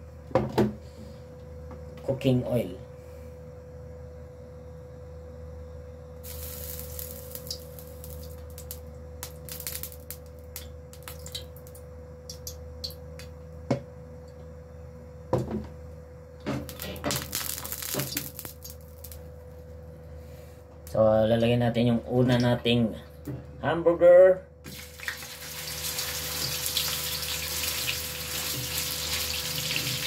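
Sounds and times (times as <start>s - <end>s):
steady low hum: 0.0s - 24.7s
hot oil hissing and crackling: 6.2s - 11.4s, 16.6s - 19.2s, 24.7s - 30.0s.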